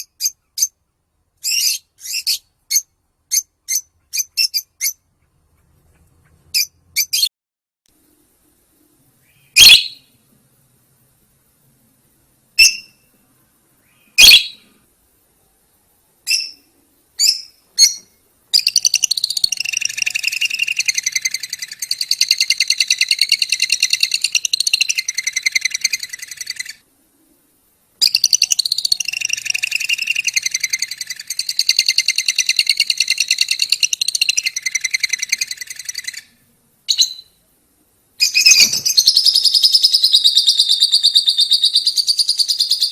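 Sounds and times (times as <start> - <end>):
lovebird chirping: 0.0 - 7.3, 8.0 - 10.2, 12.5 - 37.5, 38.2 - 42.9
lovebird rattling chatter: 18.6 - 26.8.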